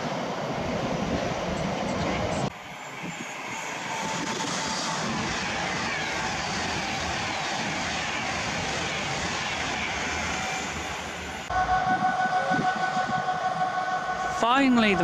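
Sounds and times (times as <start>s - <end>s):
diesel locomotive whine and rumble: 0.0s - 15.0s
passenger train passing at speed: 0.0s - 15.0s.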